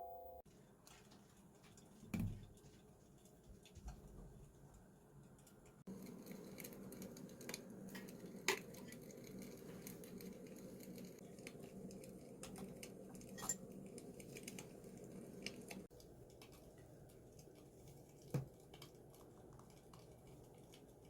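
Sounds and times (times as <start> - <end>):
tableware clinking: 13.3 - 13.6.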